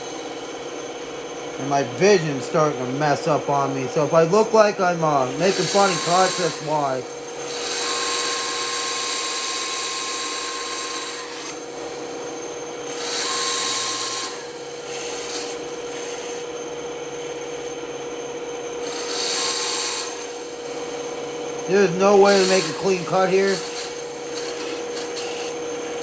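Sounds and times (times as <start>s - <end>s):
band saw humming: 0.0s - 17.8s, 18.8s - 26.0s
saw blade cutting wood: 1.6s - 11.6s, 12.9s - 16.5s, 18.8s - 20.6s, 21.6s - 26.0s.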